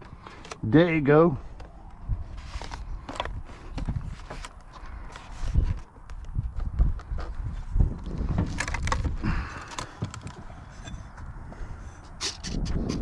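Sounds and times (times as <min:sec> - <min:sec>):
handling clicks and knocks: 0:00.0 - 0:00.8, 0:08.0 - 0:11.3
wind buffeting microphone: 0:00.8 - 0:13.0.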